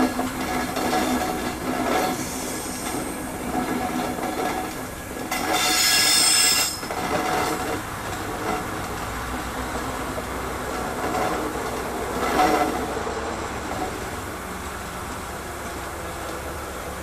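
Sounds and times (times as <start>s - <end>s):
train running on rails: 0.0s - 17.0s
high-pitched rail squeal: 1.0s - 3.4s, 5.3s - 7.7s.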